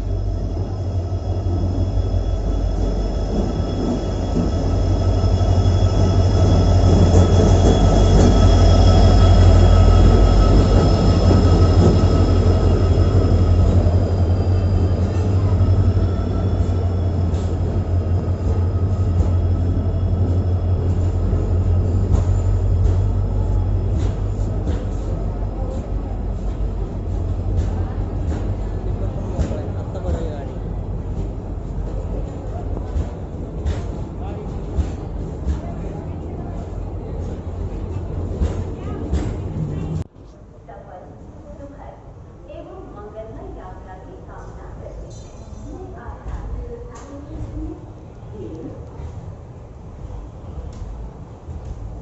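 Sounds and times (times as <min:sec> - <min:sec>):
train rumbling on track: 0:00.0 - 0:52.0.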